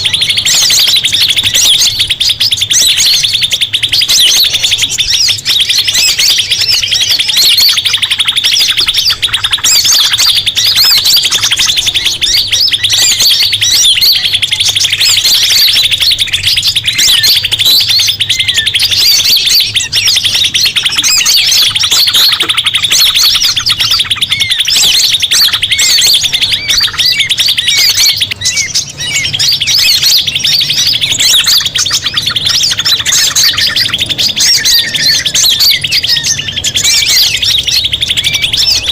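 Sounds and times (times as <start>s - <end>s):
bird chirps and whistles: 0.0s - 38.9s
songbirds buzzing trill: 0.0s - 38.9s.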